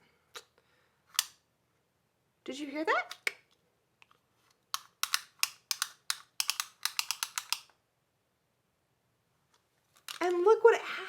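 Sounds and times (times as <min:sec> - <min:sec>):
tape measure clicking: 0:04.7 - 0:07.7.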